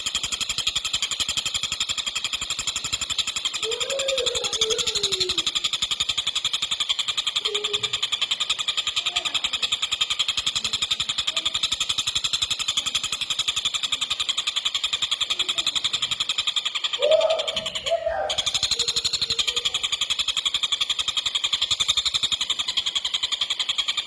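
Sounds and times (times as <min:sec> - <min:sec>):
kingfisher rattling call: 0:00.0 - 0:24.0.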